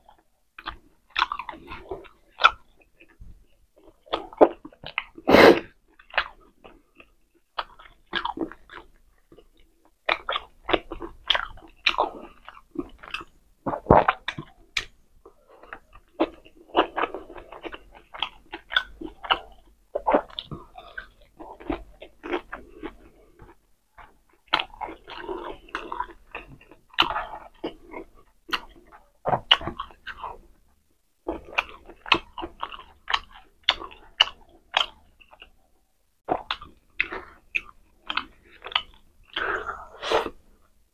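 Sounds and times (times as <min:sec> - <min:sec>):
person chewing food: 0:00.0 - 0:40.8
mouth smacks and clicks: 0:03.9 - 0:30.6.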